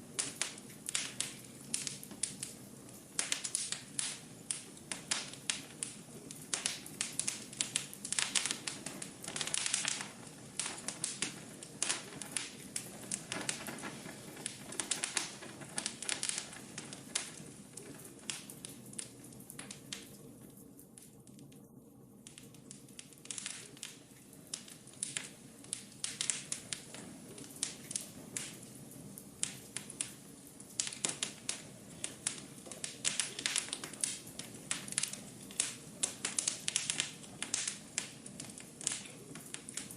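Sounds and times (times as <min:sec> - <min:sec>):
rush of flames: 0:00.0 - 0:20.3, 0:22.2 - 0:39.9
wood fire crackling: 0:00.0 - 0:39.9.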